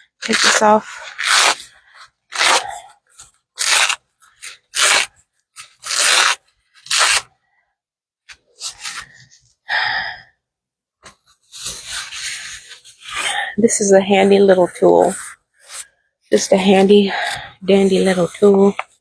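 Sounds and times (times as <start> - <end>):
rubber band rasping rubs: 0.2 - 7.3.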